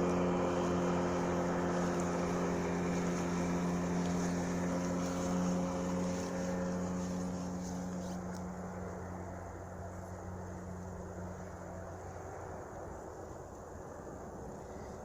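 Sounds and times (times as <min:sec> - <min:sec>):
outboard motor running: 0:00.0 - 0:13.3.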